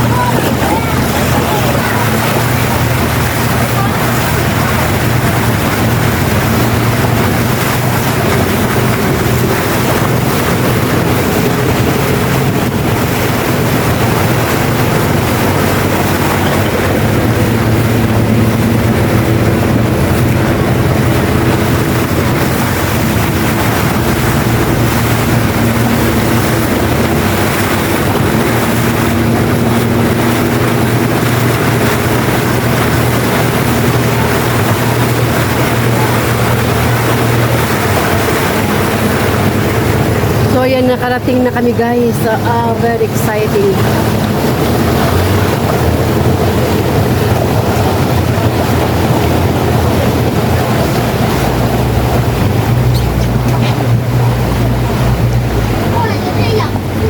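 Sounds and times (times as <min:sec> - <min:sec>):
motorboat engine running: 0:00.0 - 0:57.0
wind and water rushing: 0:00.0 - 0:57.0.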